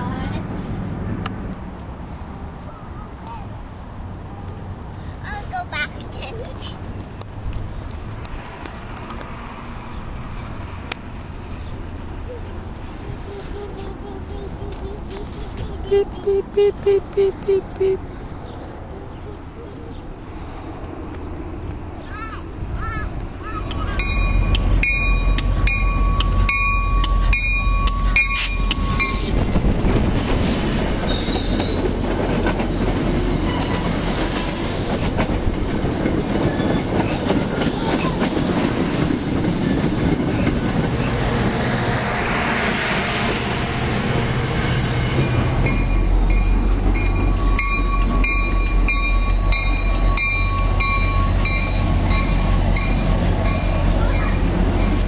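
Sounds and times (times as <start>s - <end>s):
diesel locomotive rumble: 0.0s - 55.0s
train wheels clattering on rails: 23.6s - 41.6s.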